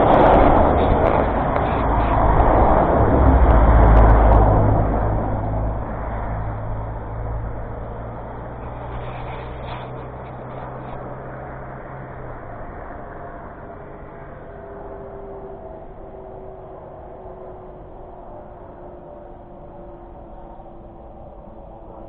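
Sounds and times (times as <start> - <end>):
vehicle passing by: 0.0 - 22.0.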